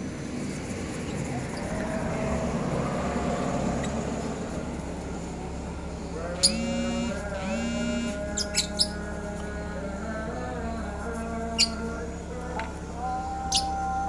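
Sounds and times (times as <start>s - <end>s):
motor-driven machine running: 6.2s - 8.4s
short flat buzzy tones: 6.4s - 8.6s.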